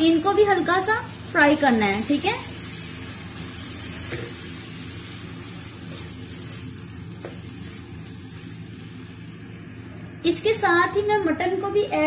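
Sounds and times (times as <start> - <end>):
peas frying in a wok: 0.0 - 11.6
spatula stirring and knocking pan: 5.8 - 8.5.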